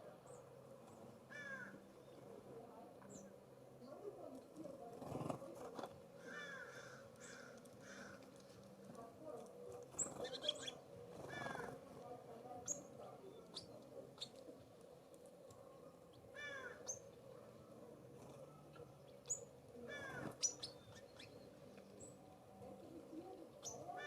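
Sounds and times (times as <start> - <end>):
small birds chipping: 4.3 - 24.0.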